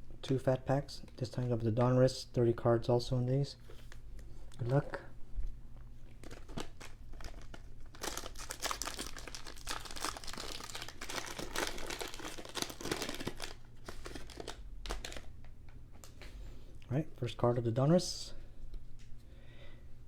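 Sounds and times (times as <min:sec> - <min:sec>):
plastic wrapper tearing and crinkling: 0:06.1 - 0:15.4.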